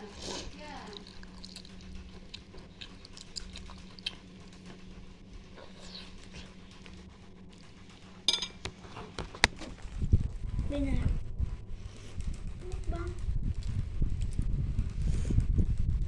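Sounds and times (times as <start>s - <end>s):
chewing with wet clicks: 0.6s - 8.1s, 12.2s - 14.4s.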